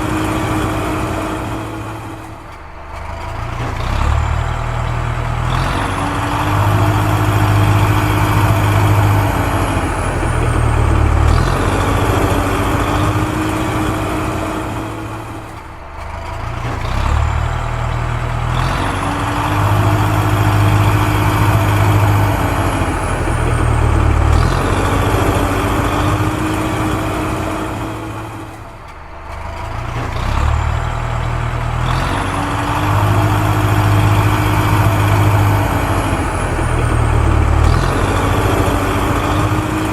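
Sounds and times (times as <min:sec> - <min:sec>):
heavy vehicle engine drone: 0:00.0 - 0:39.9.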